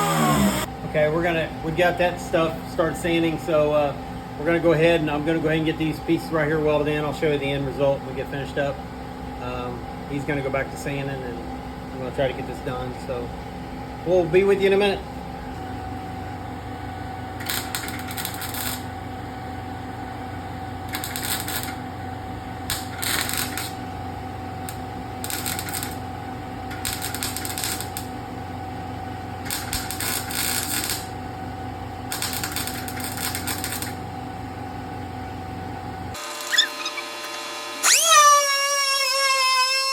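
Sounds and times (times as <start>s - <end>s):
welder crackling sizzle: 17.4s - 18.9s, 20.8s - 21.9s, 22.7s - 24.0s, 24.6s - 28.2s, 29.4s - 31.2s, 32.1s - 34.0s.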